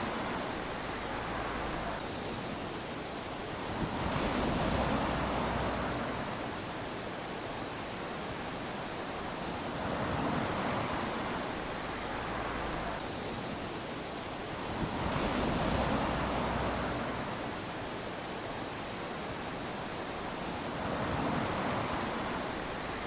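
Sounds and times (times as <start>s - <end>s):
small waves lapping on shore: 0.0s - 23.0s
steady hiss of surf: 0.0s - 23.0s.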